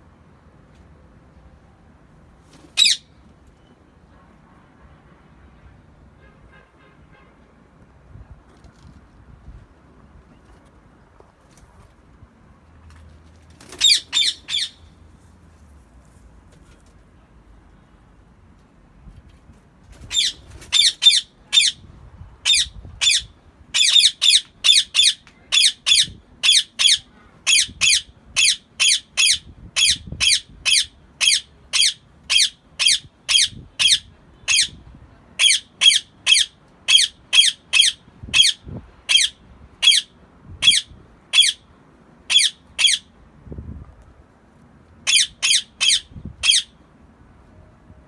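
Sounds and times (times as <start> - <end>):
parakeet squawking shrilly: 2.7 - 3.0, 13.7 - 14.8, 20.0 - 21.8, 22.4 - 34.8, 35.4 - 41.6, 42.3 - 43.1, 45.1 - 46.8.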